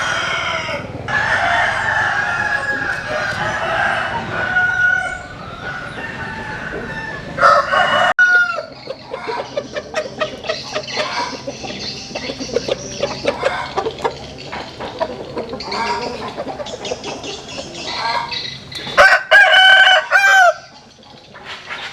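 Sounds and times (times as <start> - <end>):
rooster crowing: 0.0 - 8.7, 19.0 - 20.7
chickens clucking: 0.0 - 21.9.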